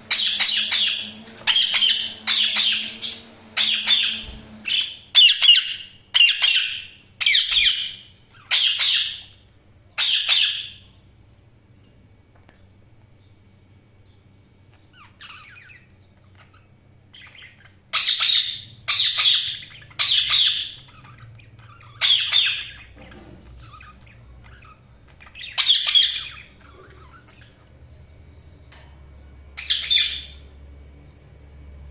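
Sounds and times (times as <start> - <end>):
budgerigars chattering: 0.1 - 9.3, 15.0 - 27.6
budgerigars squawking: 0.1 - 9.3, 15.0 - 27.6.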